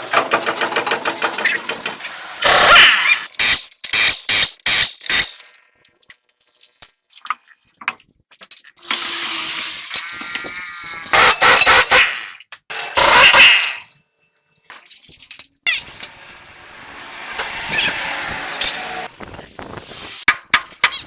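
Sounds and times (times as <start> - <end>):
whirring power tool: 15.8 - 19.2.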